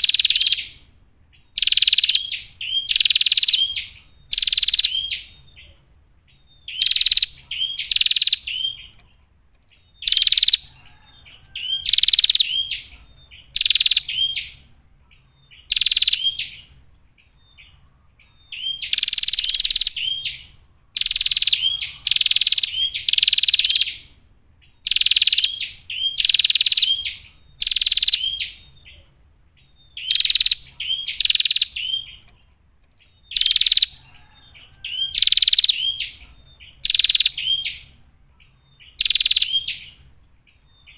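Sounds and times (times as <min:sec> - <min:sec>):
bird buzzy chattering calls: 0:00.0 - 0:05.7, 0:06.3 - 0:09.2, 0:09.8 - 0:16.7, 0:17.6 - 0:29.0, 0:29.6 - 0:38.0, 0:38.8 - 0:40.9.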